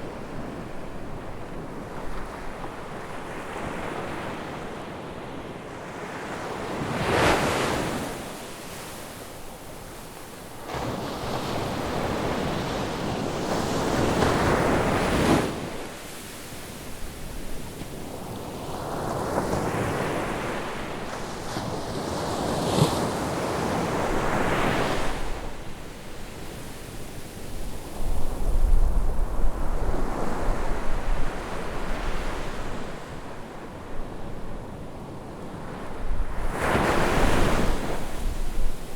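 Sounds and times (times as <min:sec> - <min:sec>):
ocean waves breaking on a beach: 0:00.0 - 0:38.9
wind rumbling on microphone: 0:27.5 - 0:32.9.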